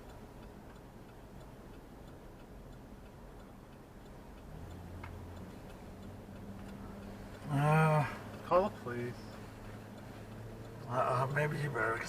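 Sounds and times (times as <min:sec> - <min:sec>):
car hazard flasher ticking: 0:00.0 - 0:12.0.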